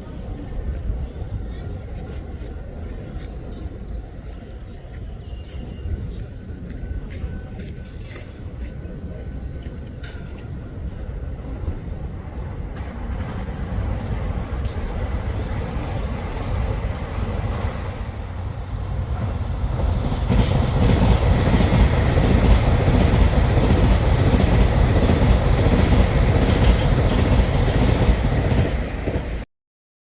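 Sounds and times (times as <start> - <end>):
train wheels clattering on rails: 6.2 - 29.4.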